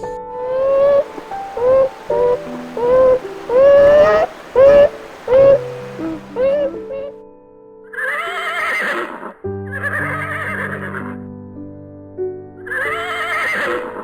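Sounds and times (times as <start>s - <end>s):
background music with held notes: 0.0s - 8.2s, 9.4s - 14.0s
horse whinnying: 8.0s - 10.9s, 12.7s - 14.0s.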